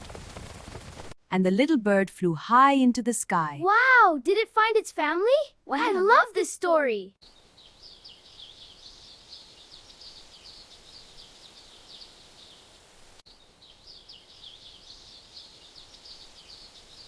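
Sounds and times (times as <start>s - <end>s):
faint hiss: 7.2s - 17.0s
small birds chirping and twittering: 7.2s - 17.0s.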